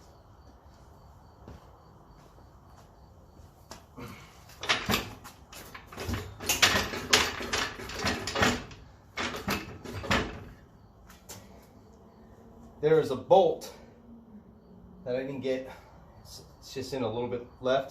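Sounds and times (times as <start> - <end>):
metal clanking and knocking: 4.6 - 10.6.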